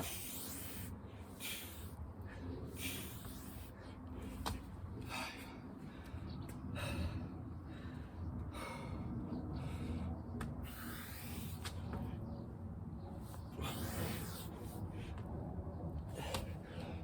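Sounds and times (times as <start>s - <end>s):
person breathing hard: 0.0s - 11.6s.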